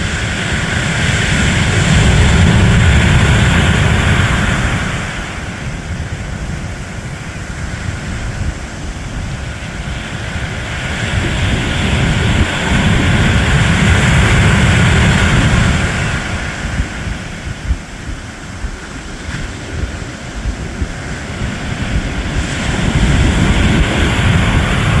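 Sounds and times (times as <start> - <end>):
ocean surf washing: 0.0 - 25.0
wind rumbling on microphone: 0.0 - 25.0.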